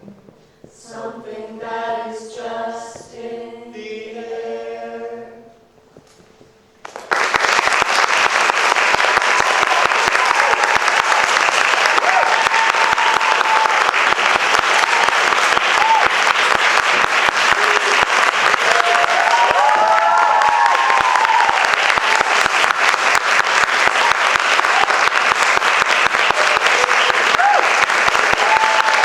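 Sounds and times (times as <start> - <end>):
audience applauding: 6.8 - 29.0
voices cheering: 9.2 - 16.5, 17.5 - 22.3, 26.1 - 29.0.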